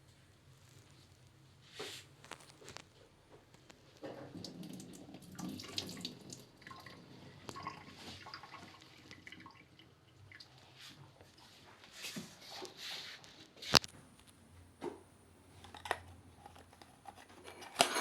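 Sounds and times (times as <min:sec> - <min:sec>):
small drips: 0:04.0 - 0:11.4
water trickling and splashing: 0:04.1 - 0:11.0.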